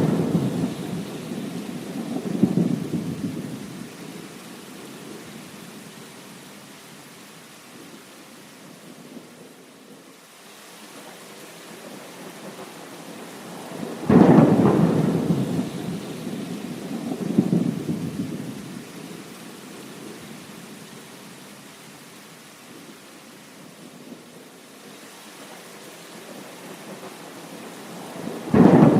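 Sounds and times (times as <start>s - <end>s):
thunder crack and rumble: 0.0s - 3.8s, 13.8s - 18.7s, 28.2s - 28.9s
steady rain: 0.0s - 28.9s.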